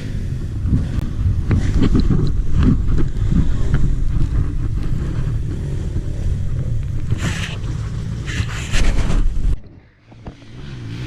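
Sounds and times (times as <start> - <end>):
wind buffeting microphone: 0.0 - 10.4
dirt bike engine running: 0.0 - 11.0
short hissing rush: 7.1 - 9.6.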